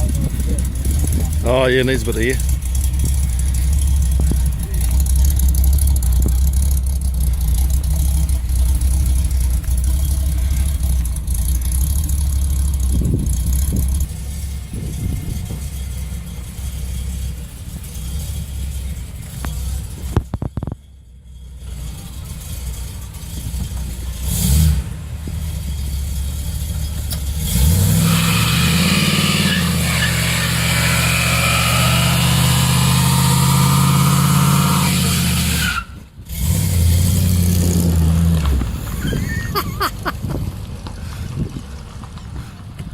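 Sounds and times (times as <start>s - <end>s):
car engine running: 0.0s - 27.9s, 37.1s - 42.9s.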